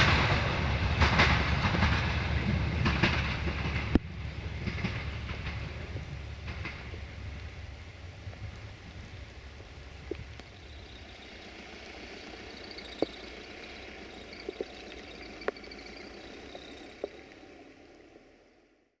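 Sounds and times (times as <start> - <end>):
steady rain falling: 0.0 - 18.9
water drips striking: 8.2 - 18.0.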